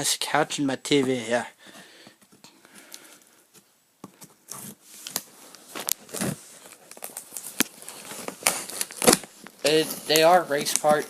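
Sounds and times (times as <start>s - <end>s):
cardboard crinkling: 3.5s - 11.0s
knife cutting cardboard box: 7.9s - 11.0s.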